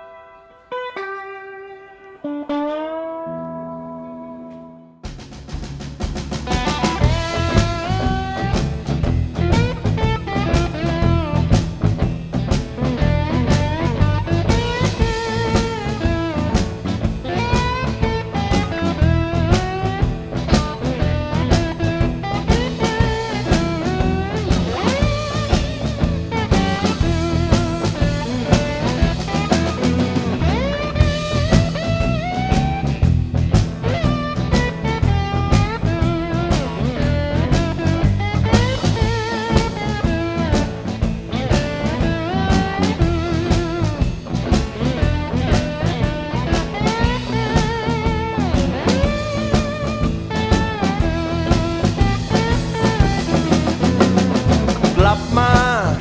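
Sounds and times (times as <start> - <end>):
electric slide guitar: 0.0 - 5.0, 6.4 - 56.0
bass guitar: 0.0 - 56.0
drum kit beat: 5.0 - 56.0.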